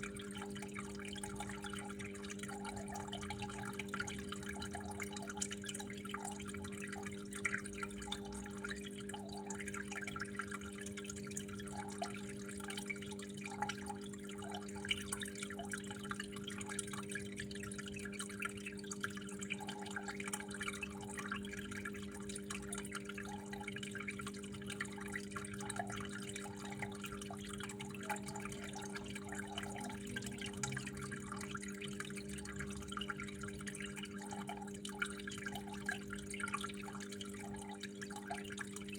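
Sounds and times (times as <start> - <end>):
water dripping and trickling: 0.0 - 38.9
steady low hum: 24.8 - 35.5.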